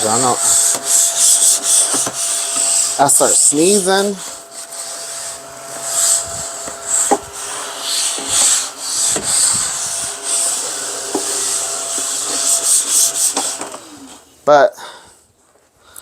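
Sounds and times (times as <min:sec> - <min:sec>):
handheld vacuum humming: 0:00.0 - 0:14.4
scratchy rubbing on cardboard: 0:00.1 - 0:03.6, 0:04.2 - 0:13.6.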